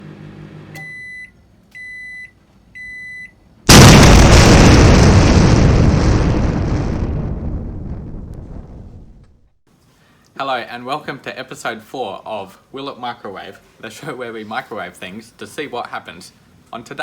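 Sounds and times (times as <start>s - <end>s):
loud explosion: 3.7s - 9.5s.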